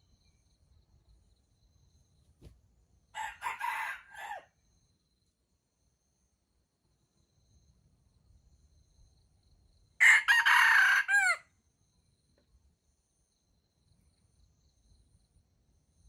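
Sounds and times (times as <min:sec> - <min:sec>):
rooster crowing: 0:03.2 - 0:04.5, 0:10.0 - 0:11.5.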